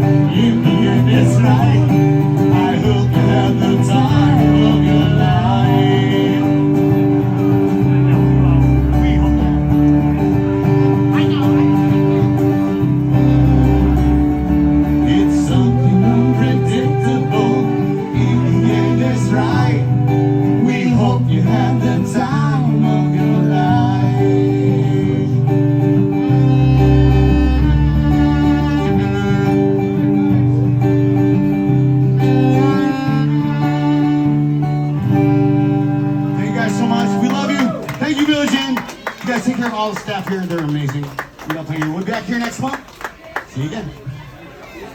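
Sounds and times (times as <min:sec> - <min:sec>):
person singing: 0:00.0 - 0:07.2, 0:13.1 - 0:30.2
live band playing: 0:00.0 - 0:41.4.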